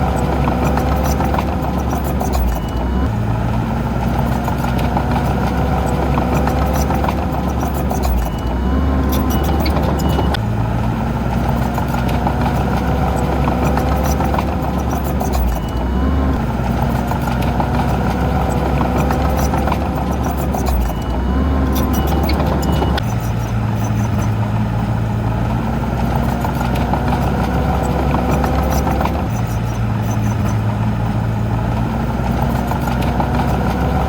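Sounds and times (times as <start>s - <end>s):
short clanks and clicks: 0.0s - 3.1s, 4.0s - 10.4s, 11.3s - 16.0s, 16.6s - 24.4s
heavy diesel engine under load: 0.0s - 34.0s.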